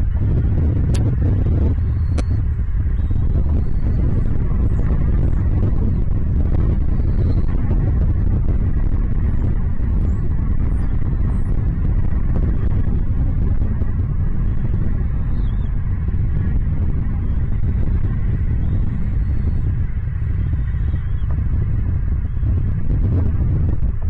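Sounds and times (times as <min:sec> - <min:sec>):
loud low rumble: 0:00.0 - 0:24.0
small birds chirping: 0:14.4 - 0:15.8, 0:17.2 - 0:21.4.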